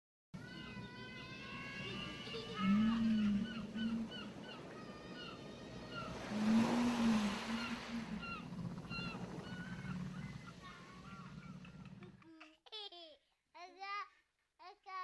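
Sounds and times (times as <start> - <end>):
seagulls calling: 0.4 - 12.1
wave washing up: 1.3 - 12.0
low drawn-out arching tone: 1.5 - 12.1.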